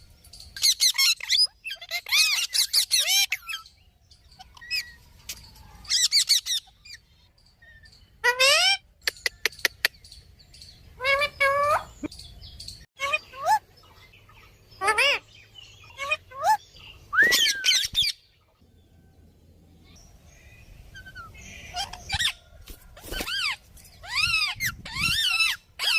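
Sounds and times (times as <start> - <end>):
parrot squawks and whistles: 16.0 - 18.2.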